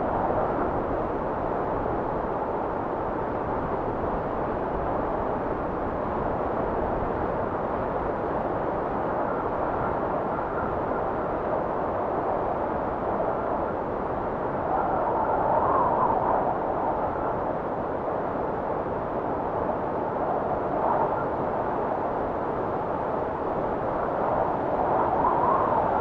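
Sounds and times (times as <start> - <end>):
blizzard wind blowing: 0.0 - 26.0
faint high wind whistle: 23.8 - 26.0.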